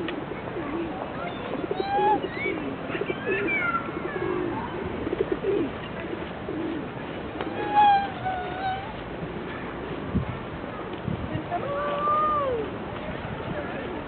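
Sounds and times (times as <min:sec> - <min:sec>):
pigeons cooing: 0:00.0 - 0:10.0.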